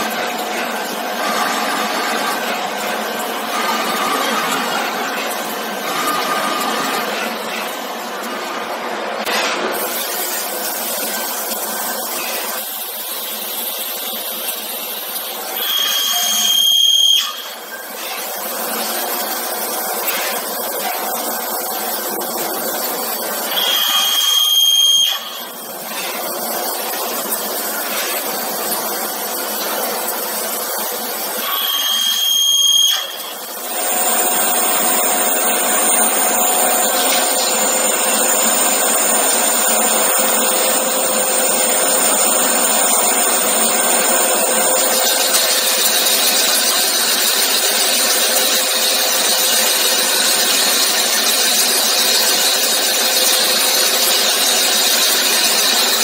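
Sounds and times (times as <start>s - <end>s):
steady machine whine: 0.0s - 9.3s, 21.2s - 56.0s
machine cutting metal: 0.0s - 56.0s.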